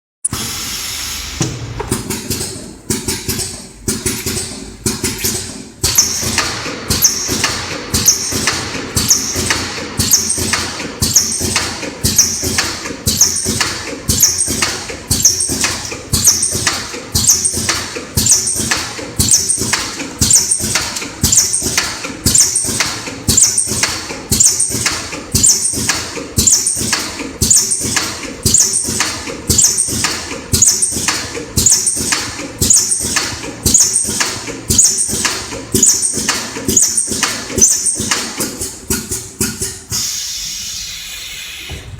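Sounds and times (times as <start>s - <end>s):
machine clacking: 1.4s - 40.1s.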